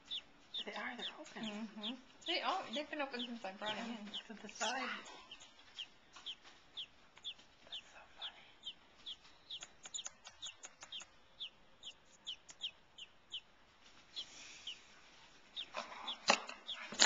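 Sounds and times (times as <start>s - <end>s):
baby bird peeping: 0.0s - 17.0s.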